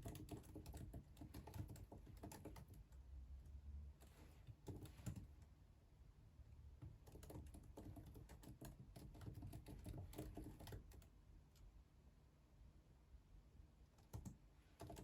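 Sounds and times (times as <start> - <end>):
typing on computer keyboard: 0.0 - 3.0, 4.5 - 5.3, 6.8 - 11.6, 14.0 - 15.0.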